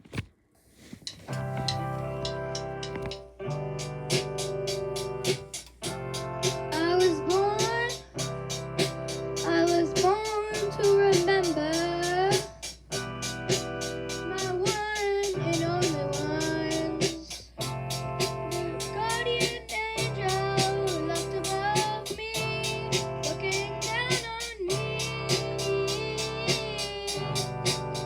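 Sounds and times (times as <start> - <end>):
quick steady beat: 1.1 - 28.0
keyboard chords: 1.2 - 28.0
boys singing: 14.3 - 17.4, 18.5 - 28.0.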